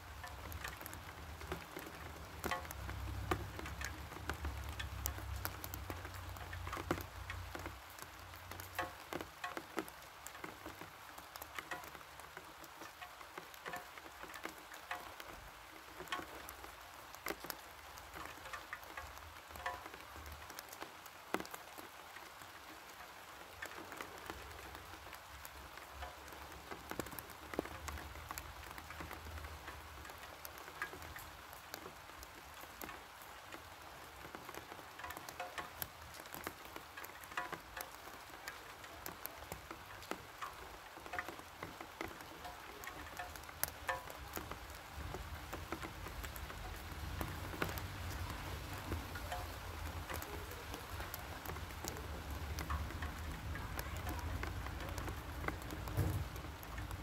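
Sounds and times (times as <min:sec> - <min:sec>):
rain falling: 0:00.0 - 0:57.0
drops ticking: 0:00.1 - 0:57.0.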